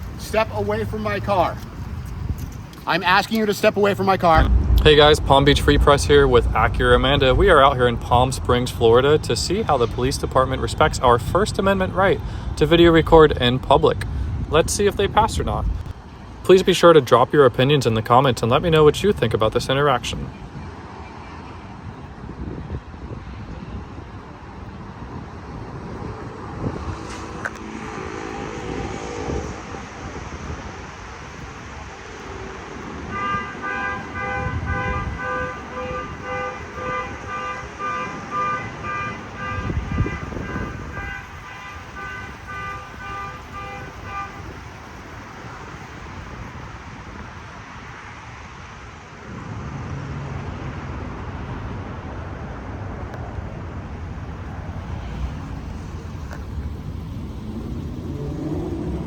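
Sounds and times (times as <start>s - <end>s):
traffic noise: 0.0s - 59.0s
vehicle horn tooting: 27.0s - 29.9s, 33.1s - 44.6s.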